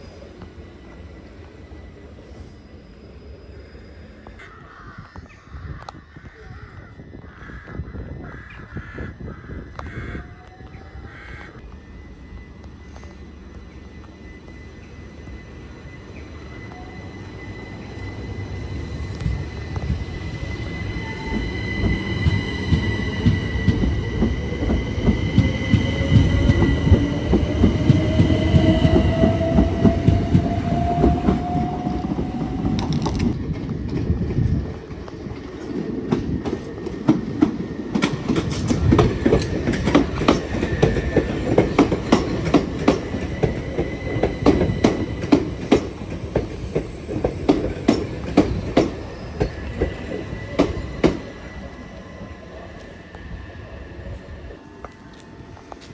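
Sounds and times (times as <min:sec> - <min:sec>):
train whine rising in pitch: 0:00.0 - 0:04.5, 0:10.5 - 0:55.9
heavy train rumble: 0:00.0 - 0:55.9
steady high tones: 0:11.6 - 0:33.4.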